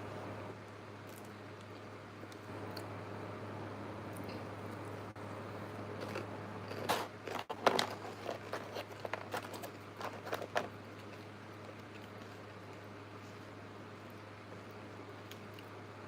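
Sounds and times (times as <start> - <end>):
steady low hum: 0.0 - 16.0
crunching bites: 5.9 - 12.9.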